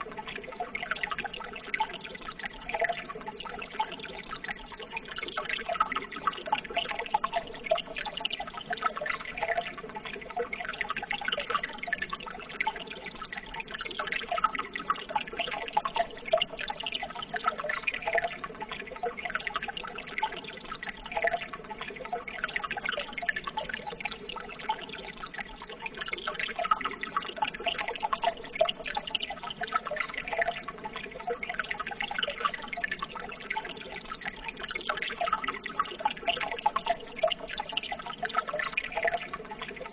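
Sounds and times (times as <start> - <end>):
running water trickling: 0.0 - 39.9
small splashes and drips: 0.0 - 39.9.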